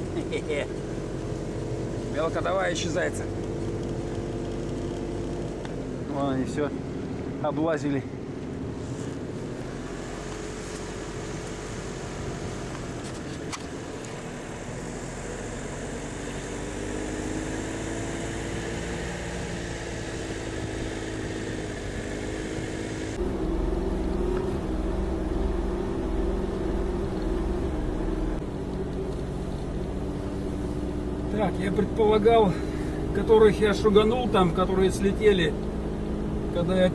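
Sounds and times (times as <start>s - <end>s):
vehicle engine running: 0.0s - 36.9s.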